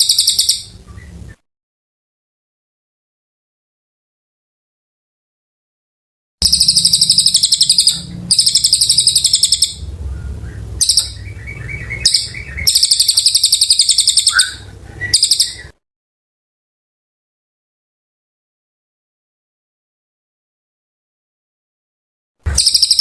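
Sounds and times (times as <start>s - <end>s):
bird chirps: 0.0s - 1.4s, 6.4s - 15.7s, 22.5s - 23.0s
songbird buzzing trills: 6.4s - 15.7s.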